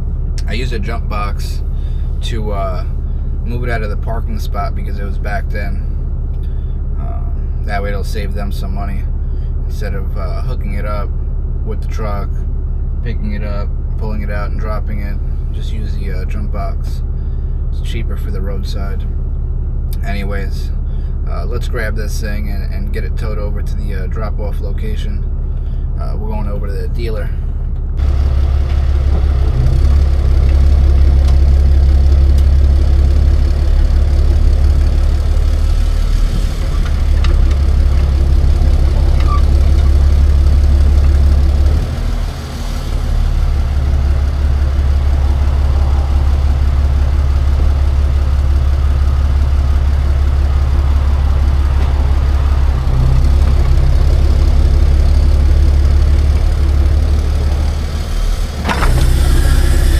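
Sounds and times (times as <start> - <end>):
truck engine droning: 0.0 - 59.9.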